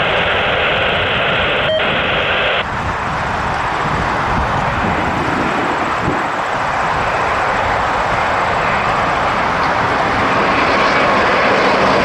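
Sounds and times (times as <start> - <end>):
radio channel hiss: 0.0 - 2.6
jet airliner engine: 0.0 - 12.0.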